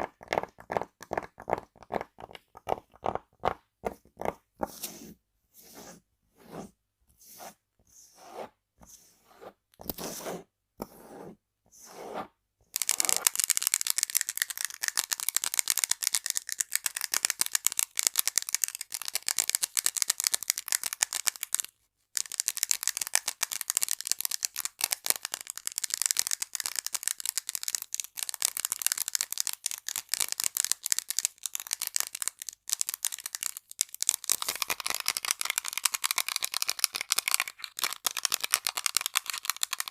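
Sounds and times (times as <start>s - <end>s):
tapping and scratching on object: 0.2s - 5.0s.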